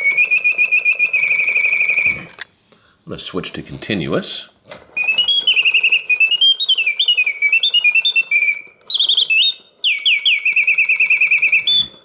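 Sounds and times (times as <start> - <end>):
mechanical bird whistling trills: 0.0 - 2.3, 5.0 - 12.0.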